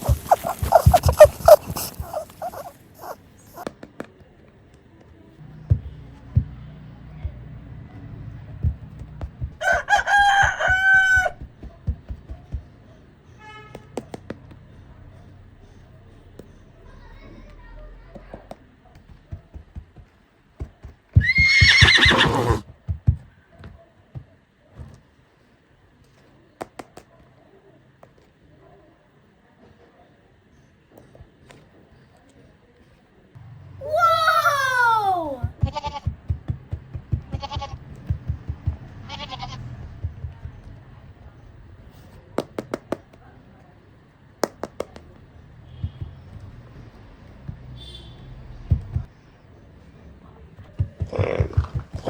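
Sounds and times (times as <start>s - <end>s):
horse whinny: 21.2s - 22.6s.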